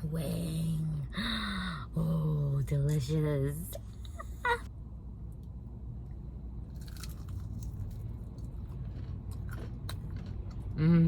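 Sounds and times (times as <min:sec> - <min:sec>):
low hum: 0:00.0 - 0:11.0
chewing crispy chicken: 0:06.7 - 0:10.8.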